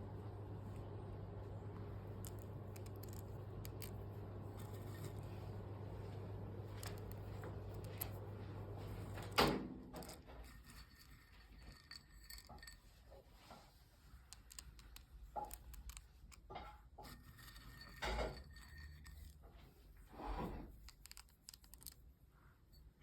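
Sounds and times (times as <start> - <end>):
low hum: 0.0 - 9.4.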